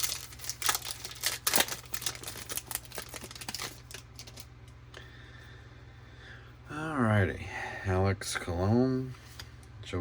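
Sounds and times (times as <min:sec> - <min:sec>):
foil wrapper crinkling and tearing: 0:00.0 - 0:04.5.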